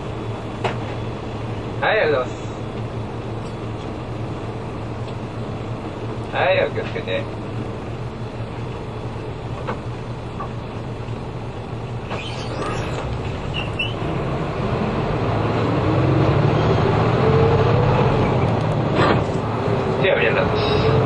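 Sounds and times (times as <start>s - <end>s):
bus engine revving: 7.3s - 21.0s.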